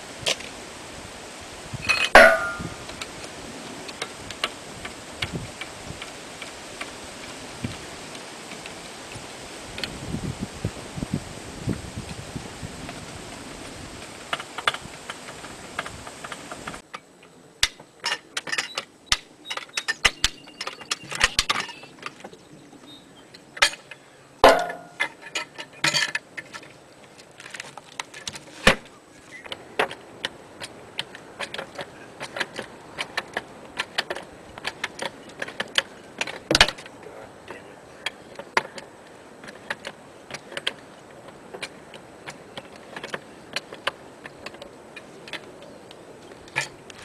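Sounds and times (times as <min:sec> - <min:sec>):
wind on microphone: 0:00.0 - 0:16.8.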